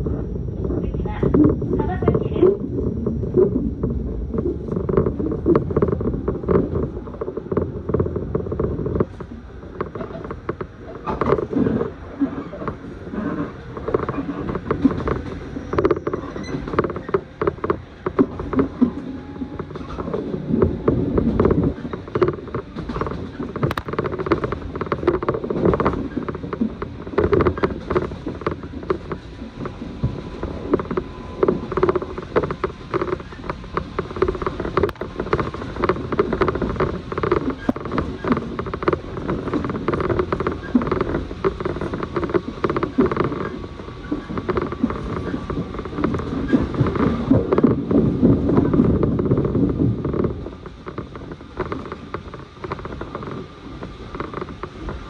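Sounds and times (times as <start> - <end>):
train wheels rumbling on rails: 0.0 - 55.0
carriage rattling and creaking: 0.6 - 55.0.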